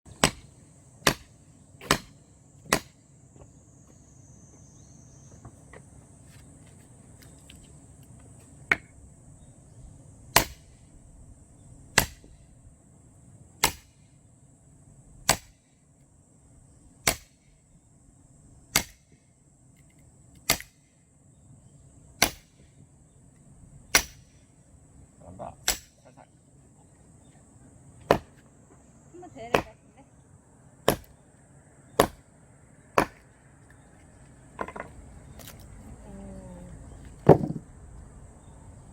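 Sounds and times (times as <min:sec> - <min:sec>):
axe chopping firewood logs: 0:00.1 - 0:03.5, 0:10.4 - 0:10.6, 0:12.0 - 0:12.3, 0:13.6 - 0:13.9, 0:15.3 - 0:15.6, 0:17.0 - 0:17.3, 0:18.7 - 0:19.0, 0:20.5 - 0:20.8, 0:22.2 - 0:22.6, 0:23.9 - 0:24.2, 0:25.6 - 0:26.0, 0:28.1 - 0:28.4, 0:29.5 - 0:29.8, 0:30.9 - 0:31.2, 0:32.0 - 0:32.2, 0:32.9 - 0:33.3, 0:37.2 - 0:37.6.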